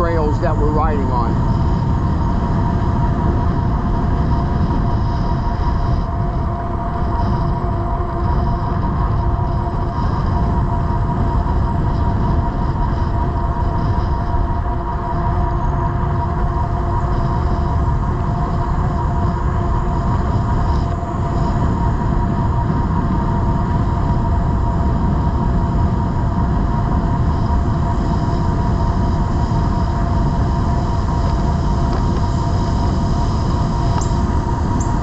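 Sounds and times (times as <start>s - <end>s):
electric motor whine: 0.0s - 35.0s
wind on microphone: 0.0s - 35.0s.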